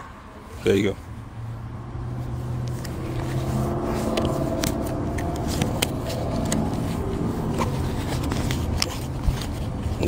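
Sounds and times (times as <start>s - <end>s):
handling clicks and rustling: 2.6s - 10.0s.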